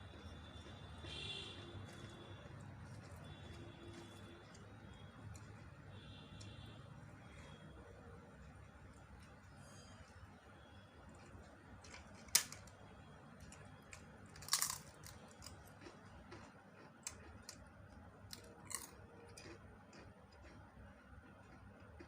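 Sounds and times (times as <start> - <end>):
person chewing food: 0.0 - 6.7, 13.4 - 22.0.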